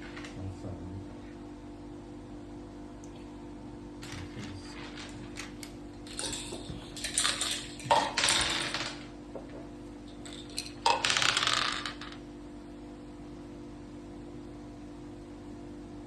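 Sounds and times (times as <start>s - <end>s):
dice and game pieces clattering: 4.0s - 9.1s, 10.1s - 12.2s.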